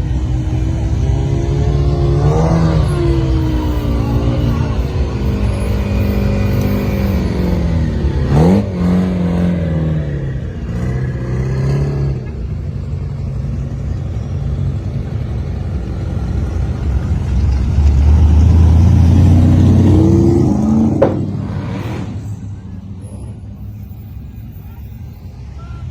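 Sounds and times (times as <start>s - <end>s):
car engines revving: 0.0s - 25.9s.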